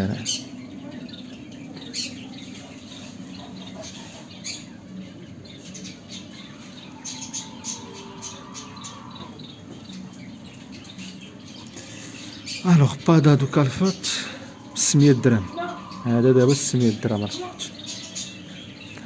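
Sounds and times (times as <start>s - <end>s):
cage birds chirping: 0.0s - 19.0s
steady low hum: 0.0s - 19.0s.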